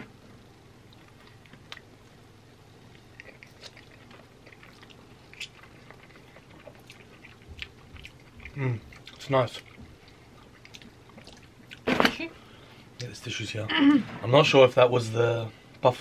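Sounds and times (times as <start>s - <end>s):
people chewing chicken wings: 2.9s - 11.9s.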